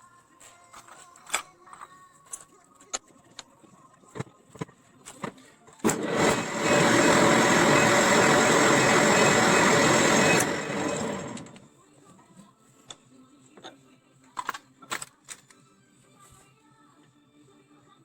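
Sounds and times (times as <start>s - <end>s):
angle grinder running: 5.8s - 11.6s.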